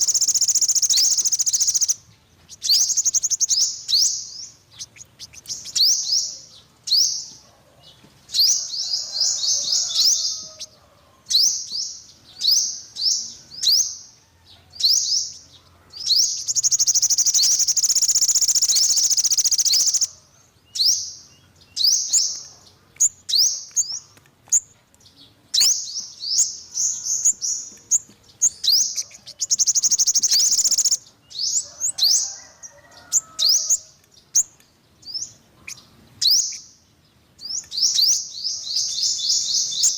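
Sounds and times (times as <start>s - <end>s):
buzzy bird trill: 0.0s - 7.2s, 16.2s - 20.2s, 28.4s - 32.2s
sunbird chirping: 0.0s - 7.4s, 14.8s - 31.8s.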